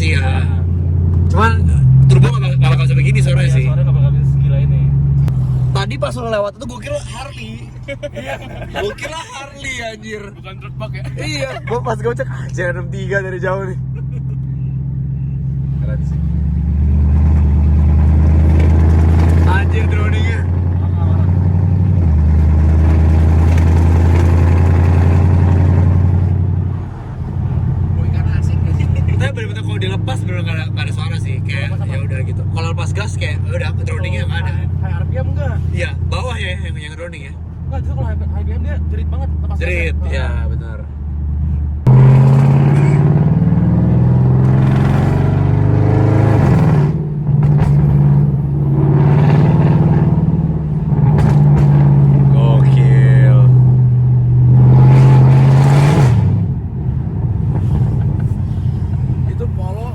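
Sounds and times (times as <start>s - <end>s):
low car exhaust drone: 0.0s - 6.8s, 7.7s - 40.0s, 40.8s - 59.9s
car exhaust drone from cabin: 41.0s - 59.9s.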